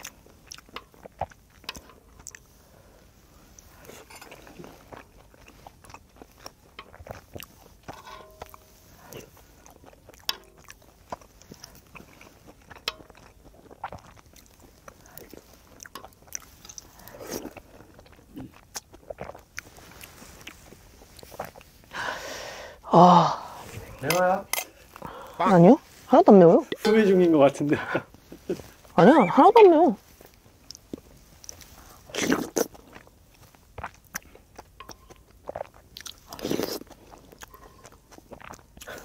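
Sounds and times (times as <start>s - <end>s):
chewing food: 0.0s - 22.2s, 28.0s - 39.0s
mouth smacks and clicks: 30.7s - 33.0s.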